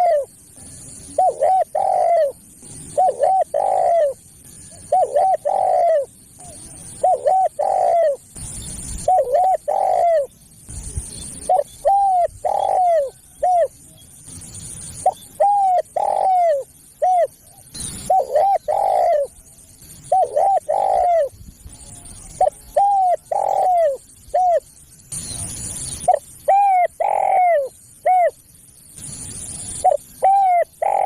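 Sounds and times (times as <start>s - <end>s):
dove cooing: 0.0s - 8.4s, 9.0s - 10.4s, 11.4s - 14.0s, 15.0s - 19.4s, 20.0s - 21.4s, 22.1s - 24.7s, 26.0s - 28.4s, 29.8s - 31.0s.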